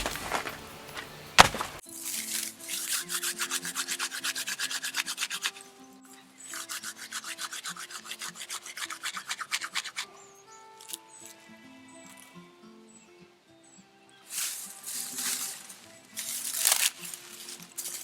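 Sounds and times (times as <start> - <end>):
fast rhythmic scraping on wood: 0.0 - 5.7, 6.4 - 10.1
soft background music: 0.0 - 18.0.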